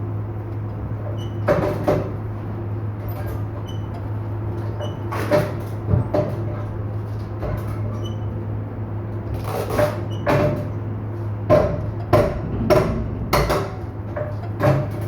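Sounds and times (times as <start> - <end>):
steady low hum: 10.6 - 15.0
metallic knocks and clanks: 11.5 - 15.0.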